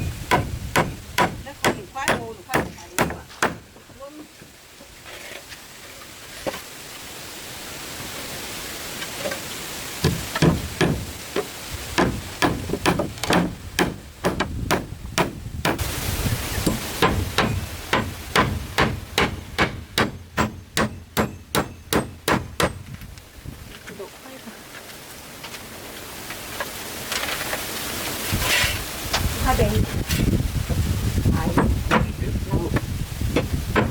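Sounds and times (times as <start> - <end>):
steady hiss: 0.0 - 33.9
hammer striking: 0.3 - 3.6, 10.0 - 15.9, 16.6 - 22.8.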